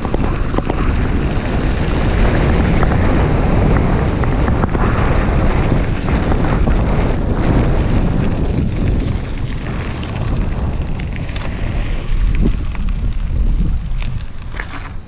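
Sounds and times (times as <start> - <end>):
wind buffeting microphone: 0.0 - 15.0
small clicks: 11.0 - 15.0.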